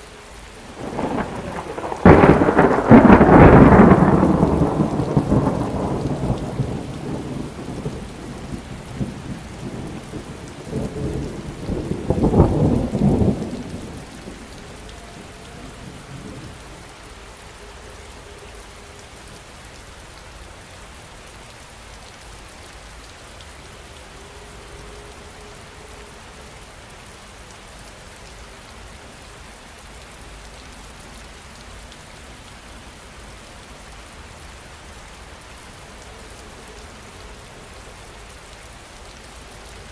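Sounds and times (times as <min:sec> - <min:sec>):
heavy rain falling: 0:00.0 - 0:39.9
rolling thunder: 0:00.7 - 0:16.8.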